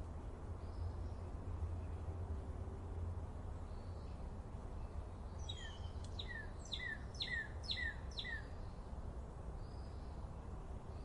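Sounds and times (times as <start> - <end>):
songbird whistling: 5.4 - 8.5.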